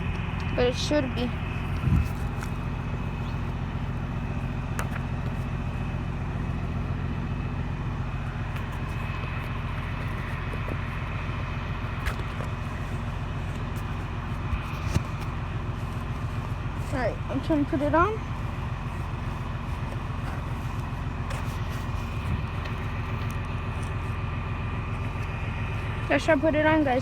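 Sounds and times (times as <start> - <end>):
engine idling hum: 0.0 - 27.0.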